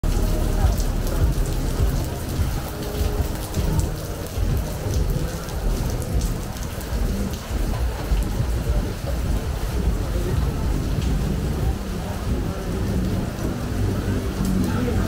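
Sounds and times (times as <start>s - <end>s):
deep continuous rumble: 0.0s - 15.0s
rain drops ticking on umbrella: 0.0s - 15.0s.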